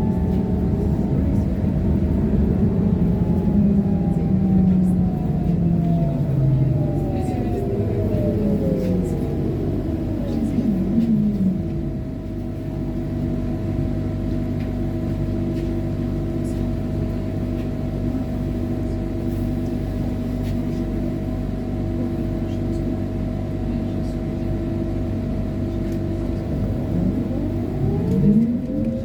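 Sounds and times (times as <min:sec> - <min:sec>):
trolleybus electric drive whining: 0:00.0 - 0:29.0.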